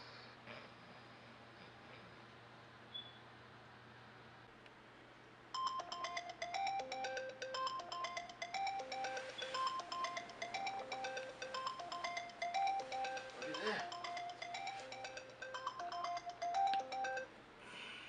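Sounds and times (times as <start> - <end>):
phone ringtone melody: 5.6 - 17.3.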